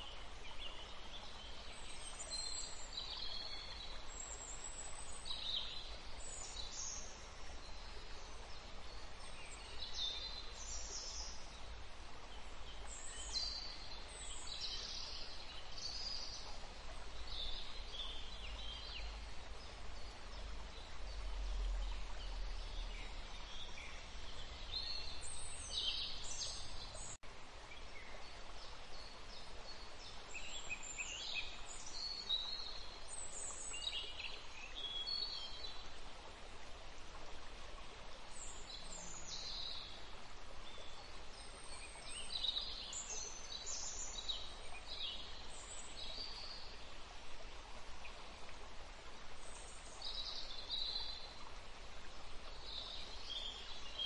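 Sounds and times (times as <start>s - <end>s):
outdoor ambience hiss: 0.0s - 54.0s
songbirds chirping: 0.0s - 54.0s.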